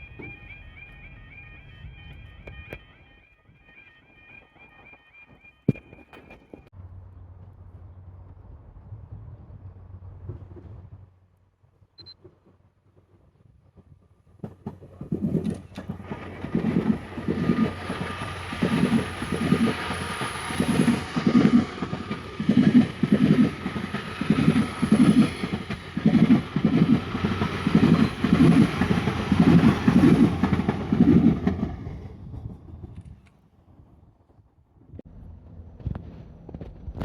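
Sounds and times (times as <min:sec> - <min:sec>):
train rumble: 0:00.0 - 0:37.0
train wheels clattering over joints: 0:12.4 - 0:33.2.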